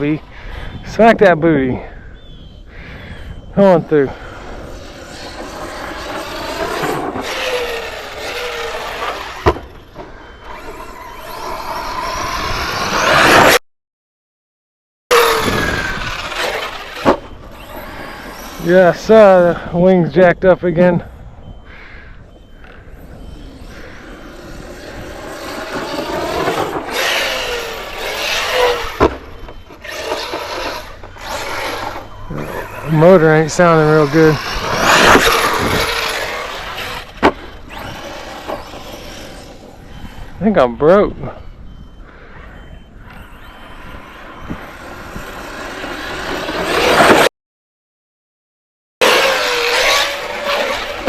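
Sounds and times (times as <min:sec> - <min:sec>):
rc truck motor whining: 0:02.4 - 0:13.6, 0:15.1 - 0:20.2, 0:21.0 - 0:47.3, 0:49.0 - 0:51.0
tyre and drivetrain noise: 0:03.3 - 0:13.6, 0:21.5 - 0:41.0, 0:49.0 - 0:51.0.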